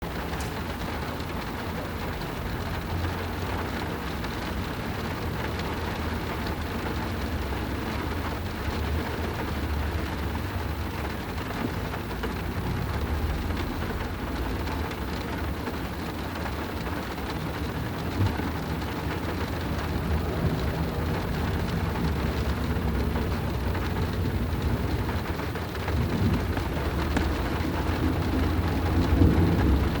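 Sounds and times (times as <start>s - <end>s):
rain pattering on a car: 0.0s - 30.0s
deep rumble: 6.5s - 30.0s.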